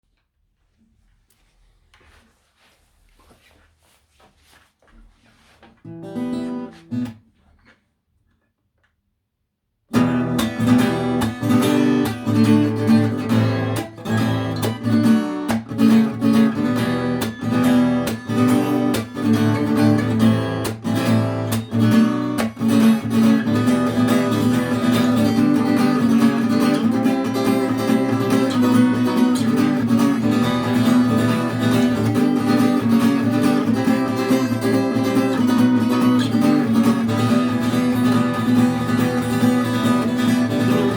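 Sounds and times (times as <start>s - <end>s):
acoustic guitar strumming: 5.8s - 7.4s, 9.9s - 40.9s.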